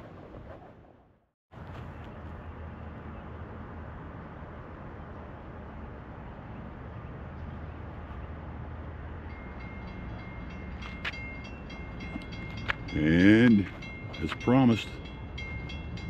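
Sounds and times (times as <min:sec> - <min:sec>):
distant train rumble: 0:01.6 - 0:16.0
high steady tone: 0:09.2 - 0:16.0.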